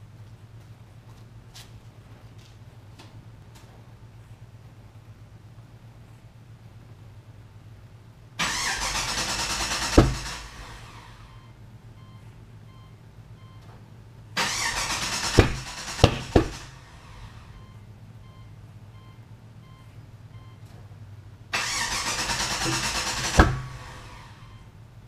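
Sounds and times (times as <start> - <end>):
engine cranking on starter: 8.4 - 11.4, 14.4 - 17.6, 21.5 - 24.6
sharp engine bangs: 8.4 - 11.4, 14.4 - 17.6, 21.5 - 24.6.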